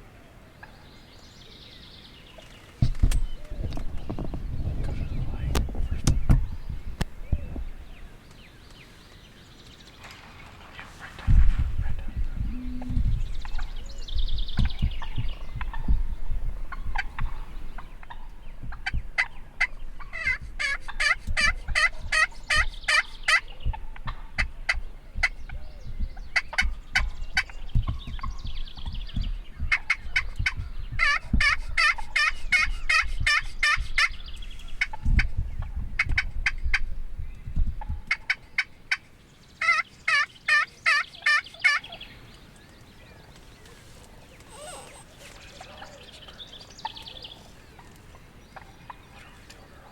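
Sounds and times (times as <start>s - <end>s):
low rumble: 11.1s - 20.6s
turkeys gobbling: 16.6s - 28.0s, 29.7s - 34.2s, 39.6s - 42.0s, 44.4s - 49.2s.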